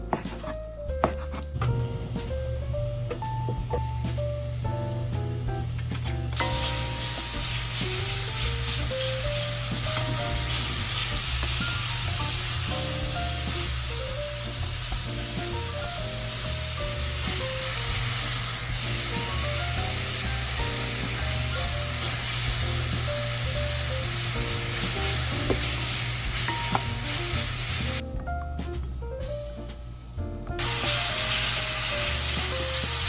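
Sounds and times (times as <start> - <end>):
light background music: 0.0 - 33.0
food sizzling in hot oil: 1.8 - 28.0, 30.6 - 33.0.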